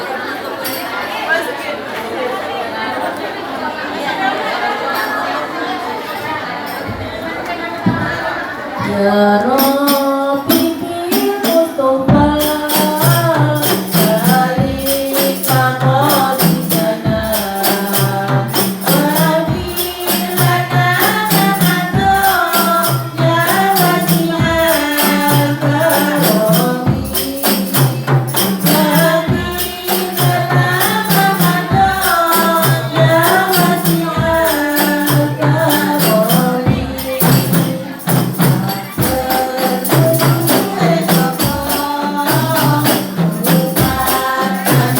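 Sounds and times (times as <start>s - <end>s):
frame drums with jingles: 0.5s - 1.0s, 9.4s - 44.9s
person singing devotional melody: 8.8s - 44.9s.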